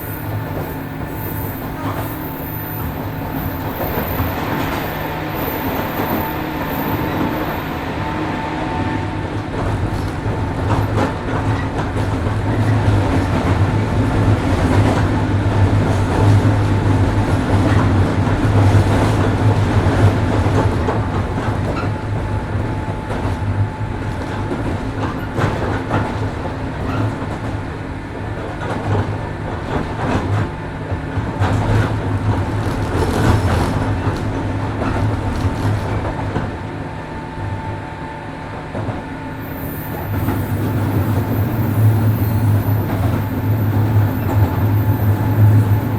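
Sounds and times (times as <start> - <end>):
wheels rumbling on rails: 0.0 - 37.7, 38.5 - 45.9
train hum: 0.0 - 45.9
wheels clicking over rail joints: 31.4 - 36.5.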